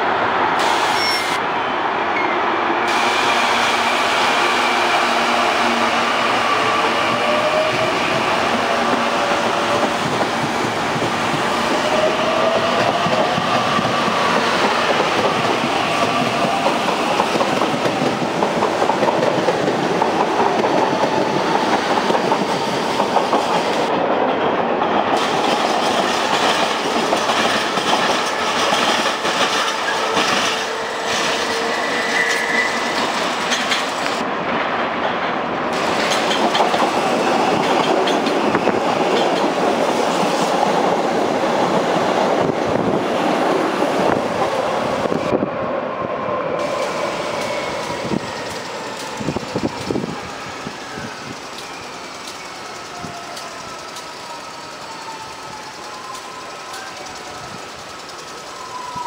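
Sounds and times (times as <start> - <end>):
train rumble: 2.9 - 59.0
wheels clattering over rail joints: 35.8 - 39.6.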